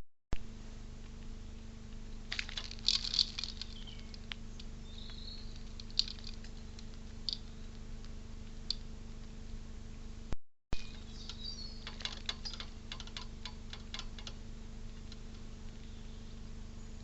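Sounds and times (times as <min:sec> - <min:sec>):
low electrical hum: 0:00.4 - 0:17.0
faint bird chirp: 0:03.6 - 0:07.8, 0:10.8 - 0:12.8, 0:15.7 - 0:17.0
taps and clicks at bird feeder: 0:10.8 - 0:14.4.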